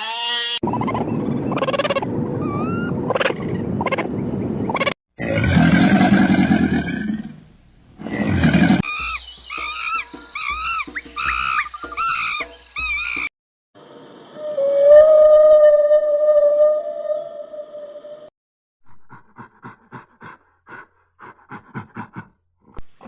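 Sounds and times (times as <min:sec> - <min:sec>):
high chirping calls: 0:00.7 - 0:04.9, 0:08.8 - 0:13.3.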